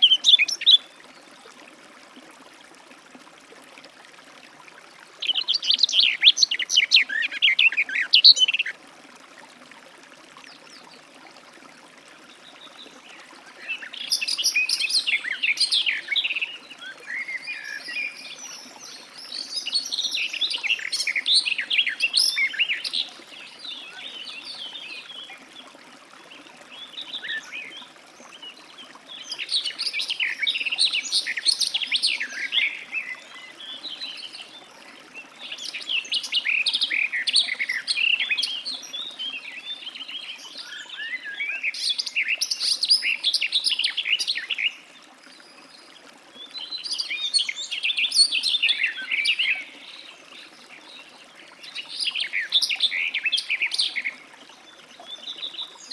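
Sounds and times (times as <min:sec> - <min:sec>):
warbler singing: 0:00.0 - 0:00.9, 0:13.6 - 0:25.3.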